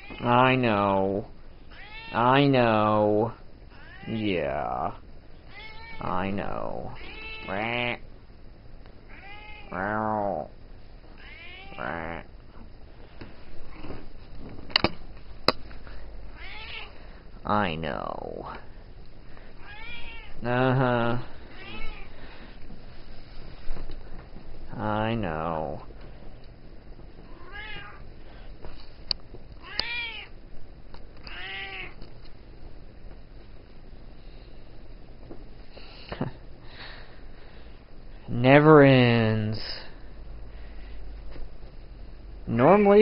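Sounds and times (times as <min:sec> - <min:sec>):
cat meowing: 0:01.7 - 0:02.2, 0:03.7 - 0:04.2, 0:05.5 - 0:06.1, 0:07.0 - 0:07.7, 0:09.1 - 0:09.9, 0:11.2 - 0:12.2, 0:16.4 - 0:16.9, 0:19.6 - 0:20.4, 0:21.6 - 0:22.1, 0:27.3 - 0:28.0, 0:29.6 - 0:30.3, 0:31.2 - 0:32.0.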